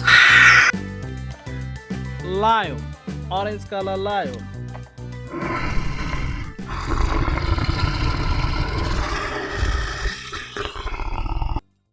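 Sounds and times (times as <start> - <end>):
lion roaring and growling: 0.0 - 0.7, 5.3 - 11.6.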